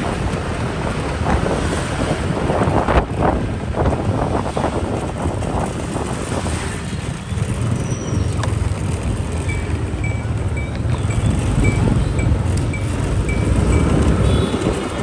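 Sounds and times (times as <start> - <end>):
small motorbike engines: 0.0 - 15.0
wind rumbling on microphone: 0.0 - 15.0
short high beeps: 9.4 - 14.6.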